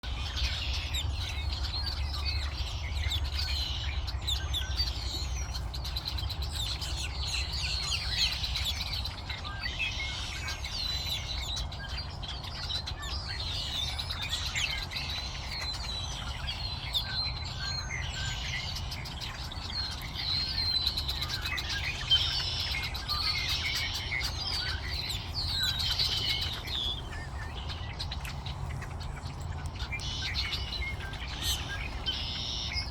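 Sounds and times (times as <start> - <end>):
birds chirping and singing: 0.0 - 32.9
steady low rumble: 18.7 - 32.9.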